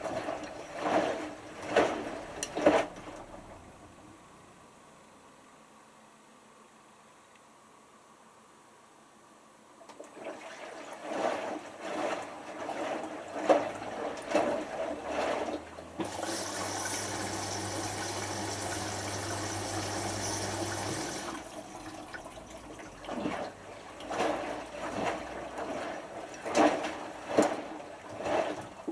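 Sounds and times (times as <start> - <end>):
washing machine water sloshing: 0.0 - 4.0, 9.8 - 28.9
water rushing in with low hum: 10.0 - 28.9.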